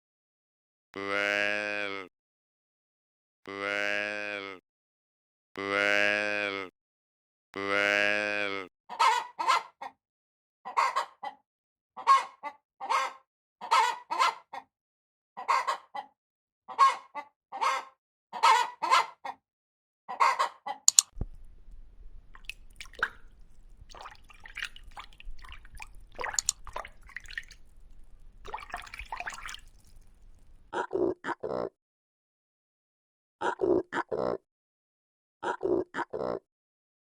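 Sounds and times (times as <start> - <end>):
faint low hum: 21.2 - 30.7.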